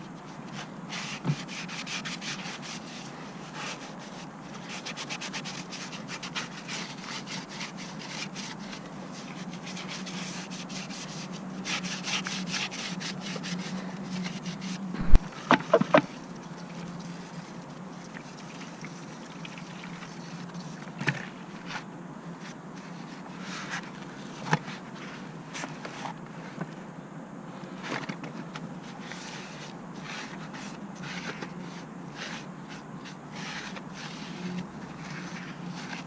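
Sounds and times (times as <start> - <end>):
rubbing and scraping strokes: 0.2 - 26.7, 28.8 - 36.0.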